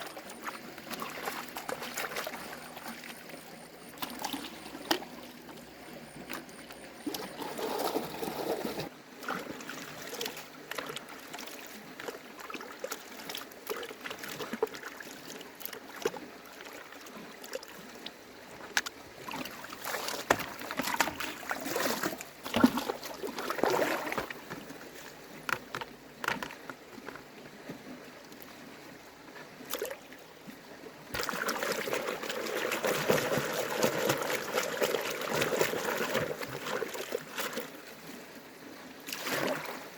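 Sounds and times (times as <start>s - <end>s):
running water rushing: 0.0s - 11.2s, 31.0s - 39.9s
water trickling and splashing: 0.0s - 39.9s
handling clicks and knocks: 25.4s - 27.3s.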